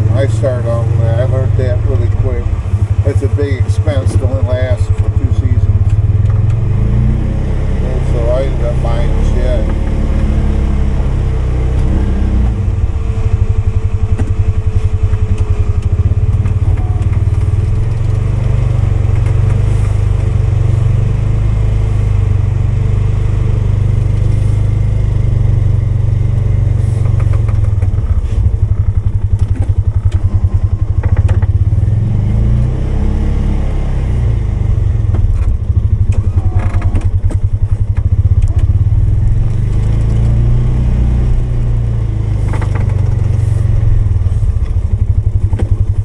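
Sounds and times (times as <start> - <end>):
atv engine running: 0.0 - 46.0
clunks: 13.3 - 21.1, 26.4 - 31.8, 35.0 - 40.6, 42.2 - 46.0.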